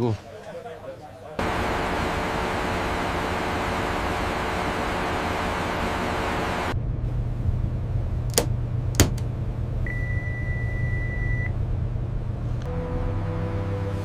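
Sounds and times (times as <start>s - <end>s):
low steady hum: 1.4s - 14.0s
electronic beep: 9.9s - 11.5s.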